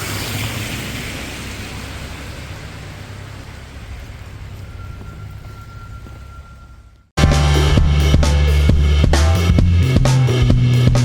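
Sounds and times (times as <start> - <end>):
tyre hiss on wet street: 0.0 - 4.8
faint thin tone: 4.6 - 7.1.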